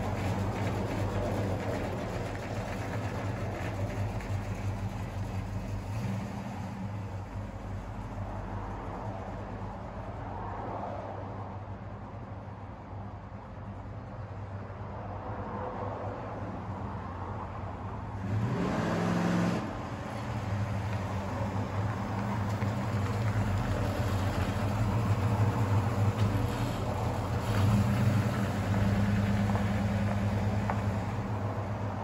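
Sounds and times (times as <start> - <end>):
car engine running: 0.0 - 10.2
engine revving: 18.2 - 19.9.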